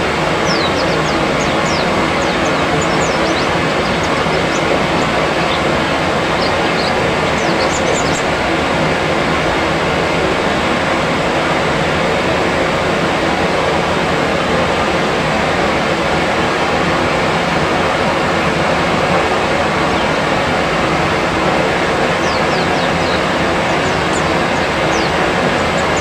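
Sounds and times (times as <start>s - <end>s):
small birds chirping: 0.0s - 9.1s, 19.1s - 26.0s
loud steady rushing noise: 0.0s - 26.0s.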